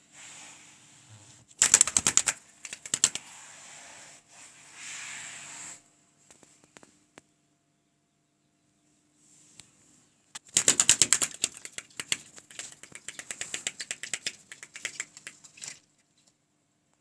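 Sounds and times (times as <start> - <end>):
bird wings fluttering: 1.6 - 3.4, 10.4 - 16.3.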